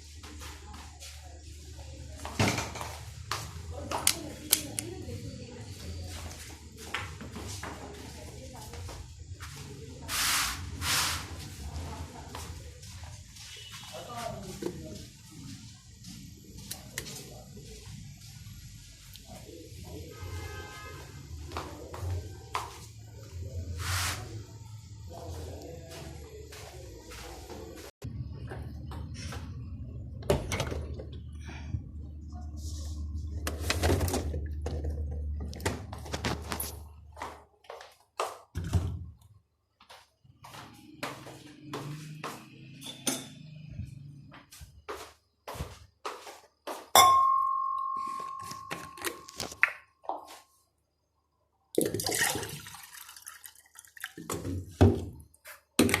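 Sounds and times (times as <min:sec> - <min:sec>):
dishes and utensils clinking: 0:42.7 - 0:43.5, 0:47.0 - 0:49.6
utensil ringing tone: 0:47.0 - 0:49.6.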